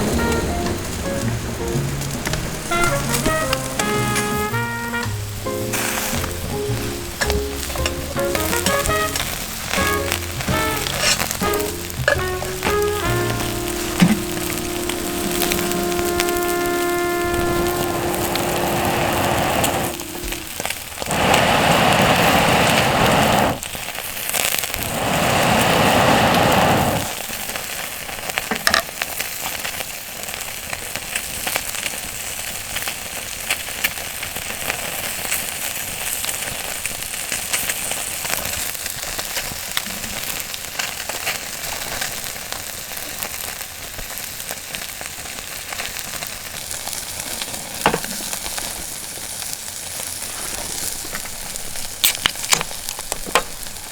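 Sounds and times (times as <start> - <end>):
loud rushing noises: 0.0 - 4.2, 17.3 - 23.6
campfire crackling: 0.0 - 53.9.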